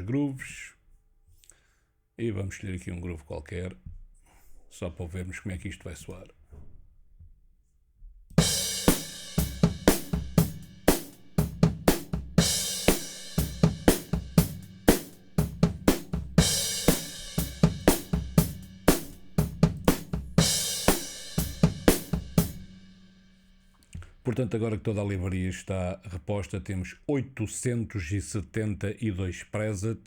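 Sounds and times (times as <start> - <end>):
drum kit playing a groove: 8.4 - 23.4
cymbal crash: 8.4 - 23.7.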